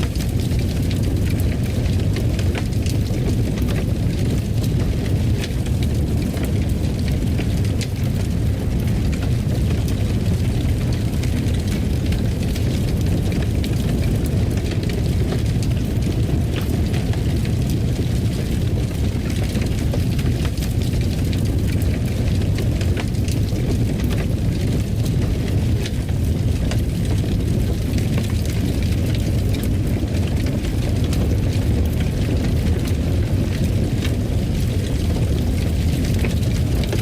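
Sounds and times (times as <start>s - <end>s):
fire crackling and popping: 0.0s - 37.0s
wood fire rumbling: 0.0s - 37.0s.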